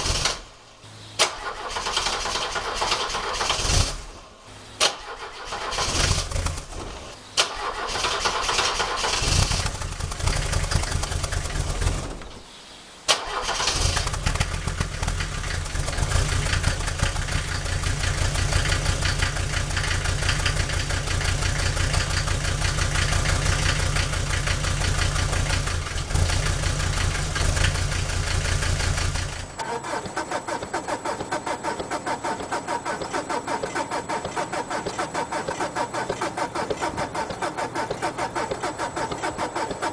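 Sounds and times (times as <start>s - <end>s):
diesel car engine starting: 0.0s - 39.9s
engine idling with pulsing beat: 14.1s - 39.9s.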